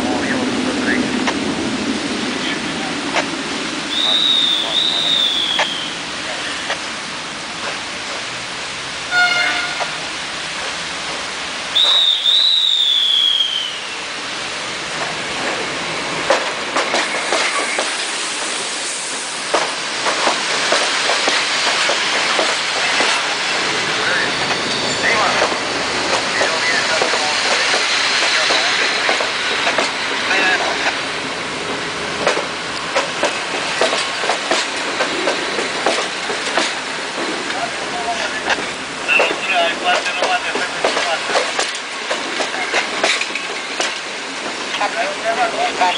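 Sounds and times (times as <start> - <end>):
railway wagons rolling: 0.0 - 45.9
rain hissing: 0.6 - 39.8
train horn blast: 9.1 - 10.0
train wheels clacking over rail joints: 14.9 - 18.7, 19.3 - 45.9
wheels clicking over rail joints: 32.2 - 37.6, 38.2 - 44.9.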